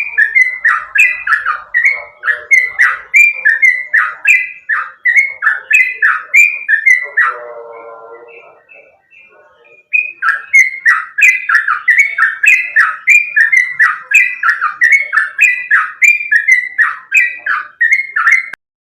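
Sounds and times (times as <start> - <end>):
bird singing whistled notes: 0.0 - 18.6.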